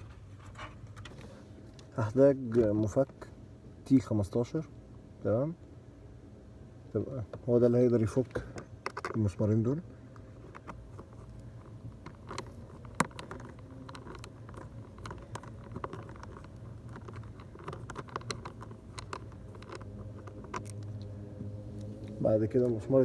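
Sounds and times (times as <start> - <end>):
low hum: 9.4 - 23.0.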